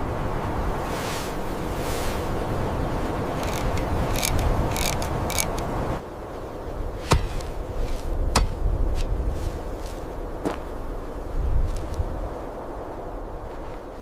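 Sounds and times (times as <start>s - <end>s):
low wind rumble: 0.0s - 14.0s.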